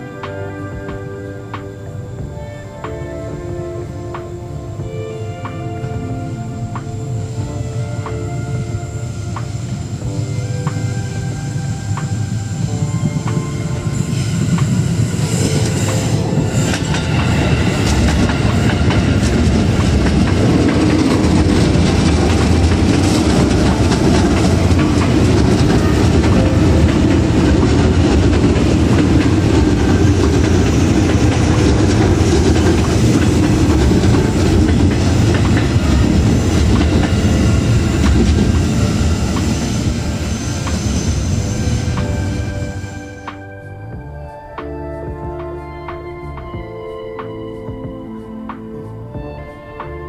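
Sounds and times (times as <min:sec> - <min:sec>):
electric train rumbling: 0:00.0 - 0:50.0
wheels clacking over rail joints: 0:09.2 - 0:43.4.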